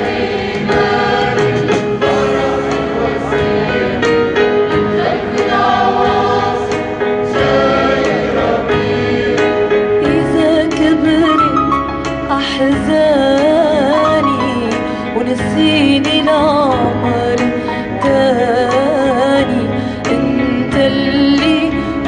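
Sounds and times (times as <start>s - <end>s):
church choir singing a hymn: 0.0s - 10.3s
steady accompaniment: 0.0s - 22.0s.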